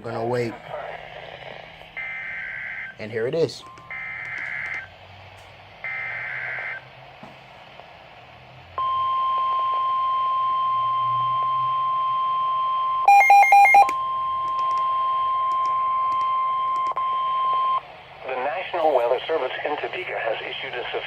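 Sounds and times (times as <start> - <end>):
steady alarm tone: 2.0 - 3.0, 3.6 - 4.9, 5.8 - 6.9, 8.8 - 17.8
high electronic beeps: 8.8 - 17.8.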